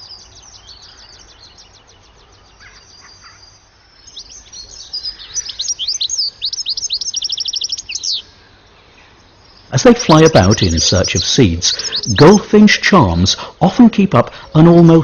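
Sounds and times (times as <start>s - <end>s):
goldfinch twittering: 0.0s - 8.4s, 9.1s - 13.5s.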